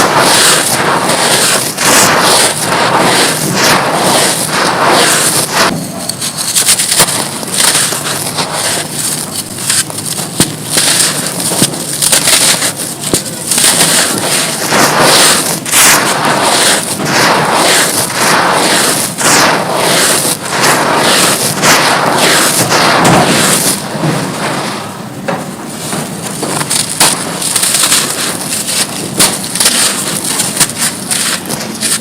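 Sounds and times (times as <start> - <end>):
dry chunks crumbling and crunching: 6.4 - 16.7, 26.3 - 32.0.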